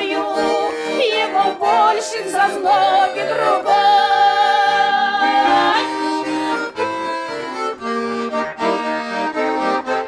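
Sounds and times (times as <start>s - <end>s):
button accordion playing chords: 0.0s - 10.0s.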